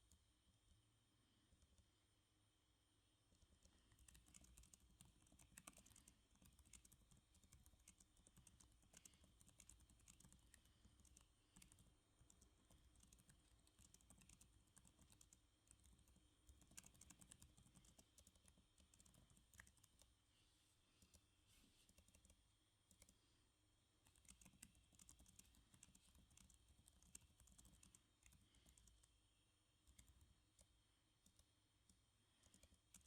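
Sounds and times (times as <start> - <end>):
typing on computer keyboard: 3.3 - 20.1, 24.0 - 29.2, 29.8 - 33.0.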